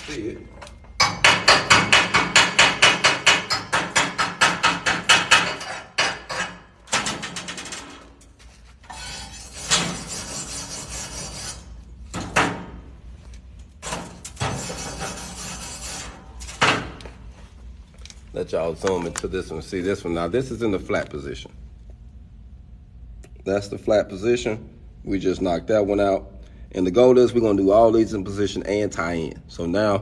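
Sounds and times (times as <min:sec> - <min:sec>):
scraping and rubbing on metal: 0:08.3 - 0:11.9, 0:13.8 - 0:16.6.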